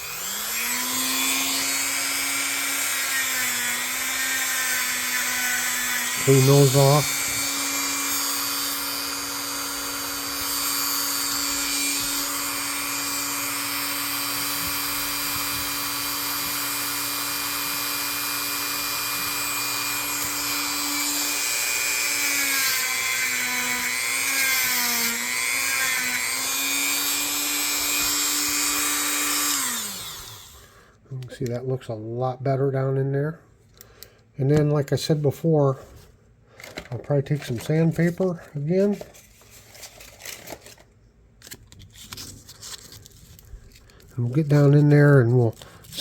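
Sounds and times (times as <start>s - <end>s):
rotary tool with brush scrubbing: 0.0s - 30.6s.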